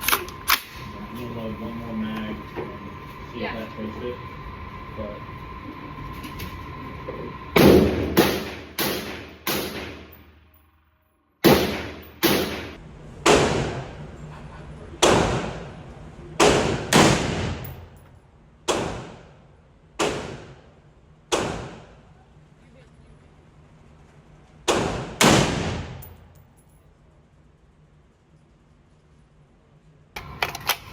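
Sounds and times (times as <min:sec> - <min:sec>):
gunshots with echo: 0:07.6 - 0:10.2, 0:11.4 - 0:14.0, 0:15.0 - 0:15.7, 0:16.4 - 0:17.7, 0:20.0 - 0:20.6, 0:24.7 - 0:26.0.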